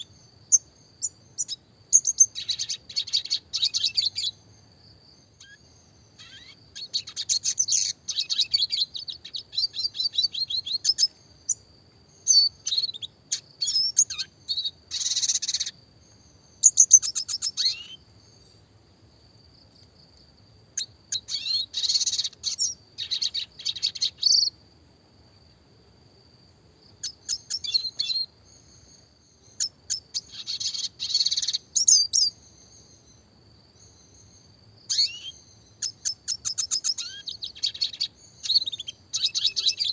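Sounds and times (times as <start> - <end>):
small bird twittering song: 0.0 - 24.7, 26.8 - 39.9.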